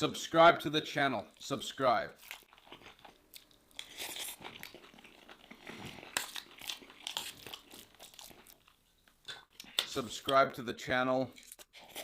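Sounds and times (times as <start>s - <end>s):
food crunching: 2.1s - 10.5s
person chewing food: 2.2s - 10.3s.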